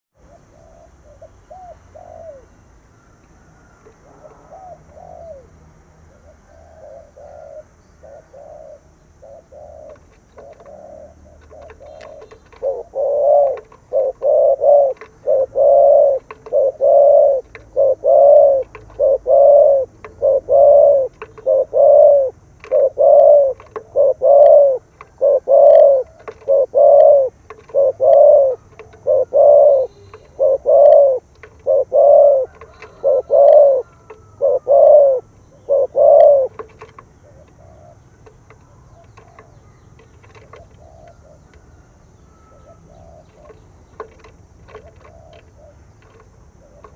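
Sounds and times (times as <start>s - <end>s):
dove cooing: 0.1s - 46.9s.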